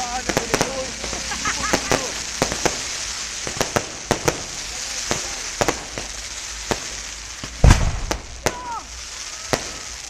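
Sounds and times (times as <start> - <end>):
fireworks popping: 0.0 - 10.0
steady hiss: 0.0 - 10.0
deep firework bang: 6.7 - 8.8.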